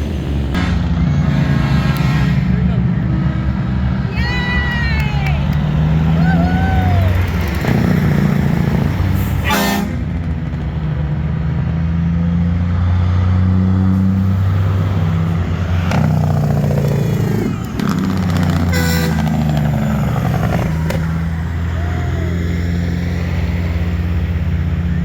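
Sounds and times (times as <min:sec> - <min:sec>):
diesel truck engines running: 0:00.0 - 0:25.0
truck horn blast: 0:00.6 - 0:02.7, 0:09.2 - 0:10.2, 0:18.6 - 0:19.9.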